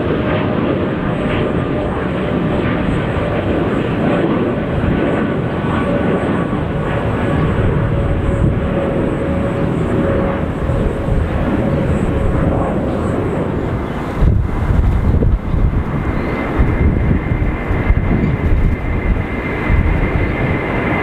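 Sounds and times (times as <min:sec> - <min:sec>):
jet engines roaring: 0:00.0 - 0:21.0
low rumble burst: 0:13.7 - 0:20.2.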